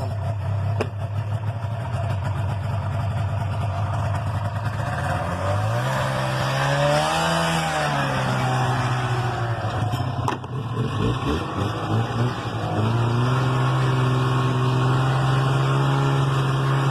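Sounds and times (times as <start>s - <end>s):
snowmobile engine revving: 3.6s - 16.9s.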